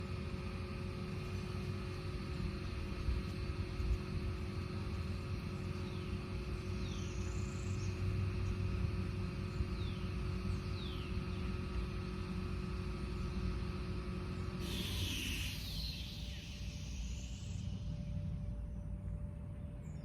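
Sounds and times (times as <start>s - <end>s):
faint constant hum: 0.0s - 20.0s
high bird calls sliding downward: 14.6s - 18.6s.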